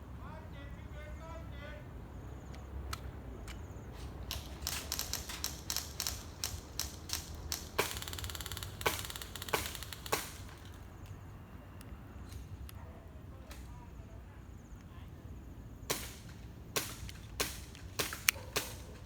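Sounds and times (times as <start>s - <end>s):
bb gun shots: 4.2s - 10.9s, 15.9s - 19.0s.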